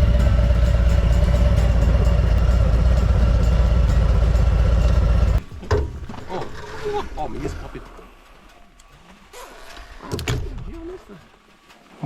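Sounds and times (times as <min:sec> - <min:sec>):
motorcycle engine running: 0:00.0 - 0:05.6
wind rumble: 0:00.0 - 0:08.4.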